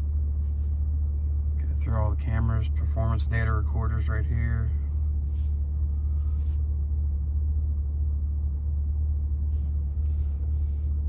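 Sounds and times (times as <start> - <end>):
faint rustles: 5.0 - 6.7, 9.5 - 11.0.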